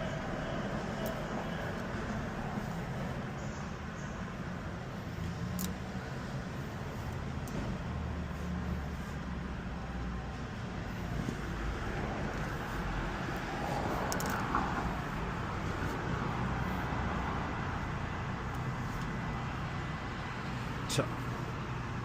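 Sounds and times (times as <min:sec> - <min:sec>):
car engine and road rumble: 0:00.0 - 0:22.0
sharp clicks: 0:05.4 - 0:05.8.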